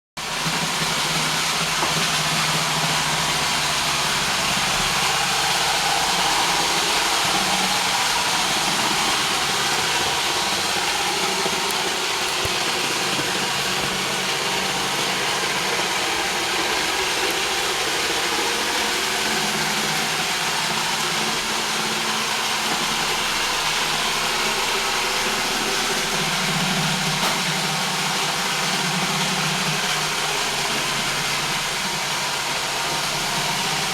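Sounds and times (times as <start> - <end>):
robot vacuum whirring: 0.4 - 23.0.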